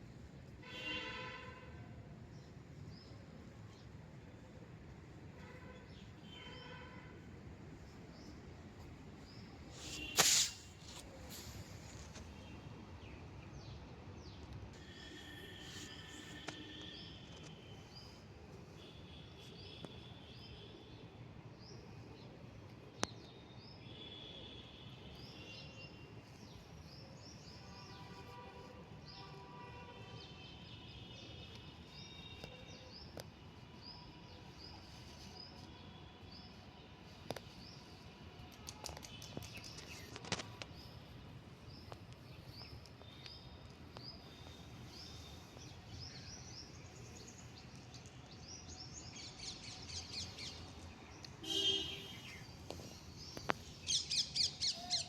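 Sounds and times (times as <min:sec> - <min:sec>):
loud bird call: 0:51.4 - 0:52.4, 0:53.9 - 0:55.0.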